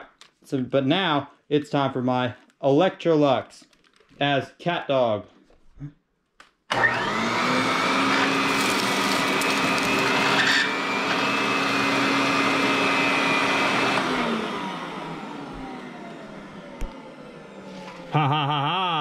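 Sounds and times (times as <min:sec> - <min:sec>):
vacuum cleaner motor whine: 0:06.7 - 0:18.1.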